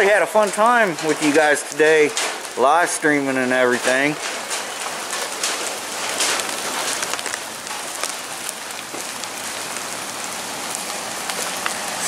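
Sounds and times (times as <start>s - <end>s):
heavy rain hissing: 0.0s - 12.0s
sharp raindrop hits: 0.0s - 12.0s.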